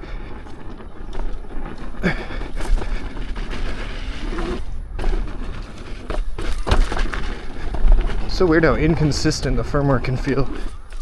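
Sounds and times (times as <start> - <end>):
tyre rumbling over dirt trail: 0.0 - 11.0
wind buffeting microphone: 0.0 - 11.0
sharp knocks from bumps: 5.0 - 11.0.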